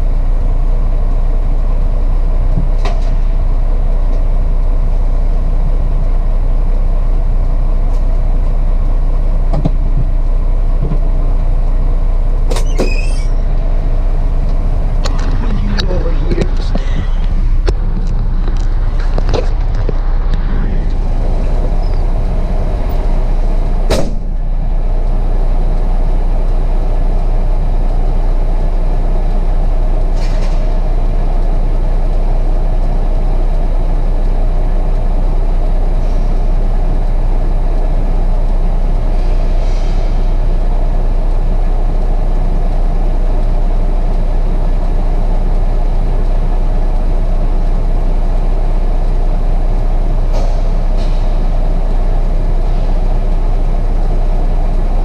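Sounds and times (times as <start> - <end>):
diesel engine running: 0.0 - 55.0
sharp click: 23.9 - 24.3.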